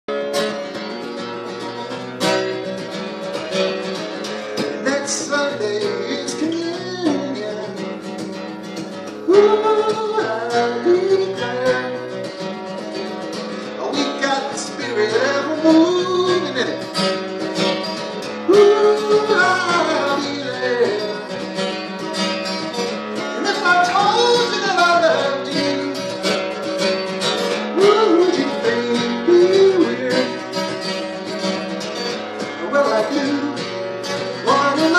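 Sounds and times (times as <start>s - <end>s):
acoustic guitar: 0.0s - 34.9s
person singing: 4.6s - 7.9s, 9.3s - 12.4s, 13.6s - 16.9s, 18.4s - 21.4s, 23.4s - 26.3s, 27.7s - 30.5s, 32.6s - 33.6s, 34.2s - 34.9s.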